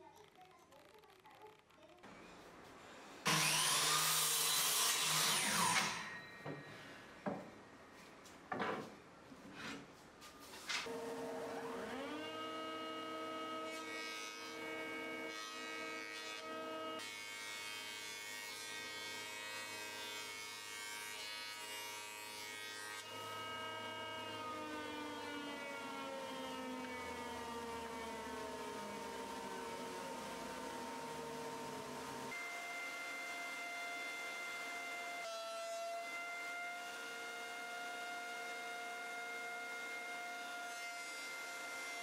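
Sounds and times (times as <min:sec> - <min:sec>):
machine cutting through wood: 0:03.3 - 0:06.2, 0:10.8 - 0:42.0
woodworking machine whining: 0:03.3 - 0:06.7, 0:10.9 - 0:19.4, 0:21.2 - 0:42.0.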